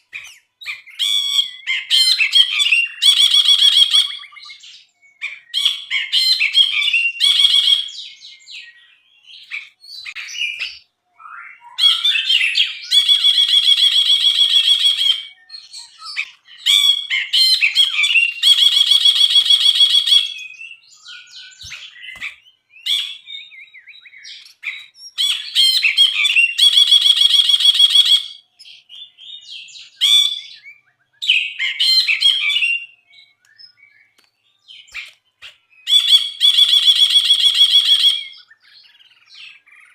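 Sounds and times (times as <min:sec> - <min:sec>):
bulbul singing: 0:00.0 - 0:39.9
rapid buzzy bird trill: 0:15.9 - 0:23.2, 0:24.0 - 0:28.9.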